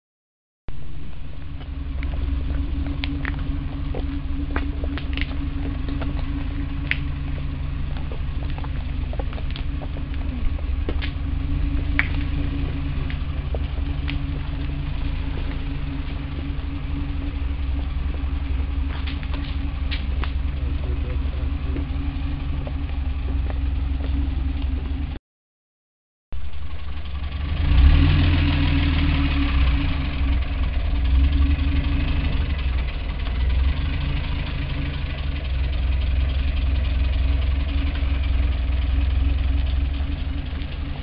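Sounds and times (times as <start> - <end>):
car engine running at low revs: 0.7 - 25.2, 26.4 - 41.0
footsteps: 1.1 - 25.2.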